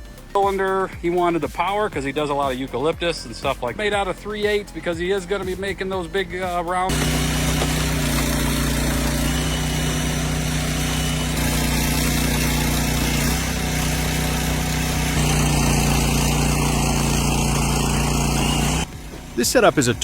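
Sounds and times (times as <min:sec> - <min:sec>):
small gasoline engine running: 0:06.9 - 0:20.0.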